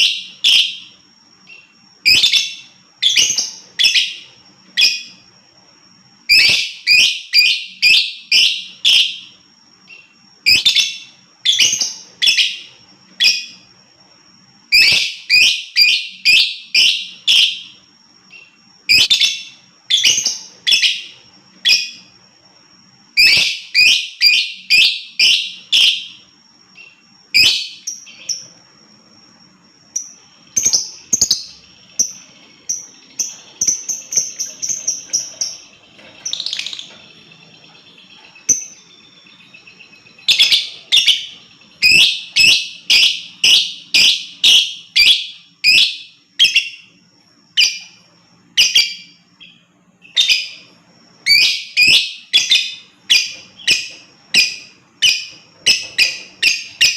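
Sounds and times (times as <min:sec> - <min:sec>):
lovebird shrill chirps: 0:00.0 - 0:05.2, 0:06.2 - 0:13.6, 0:14.6 - 0:22.1, 0:23.1 - 0:28.5, 0:37.6 - 0:46.9, 0:47.6 - 0:56.9
thin steady high tone: 0:00.0 - 0:56.9.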